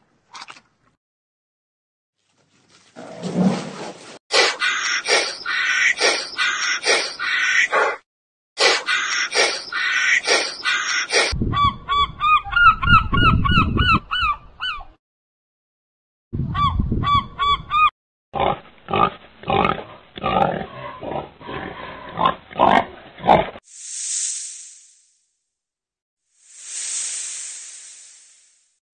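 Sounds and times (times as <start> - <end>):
short high hiss: 23.7 - 25.3, 26.4 - 28.8.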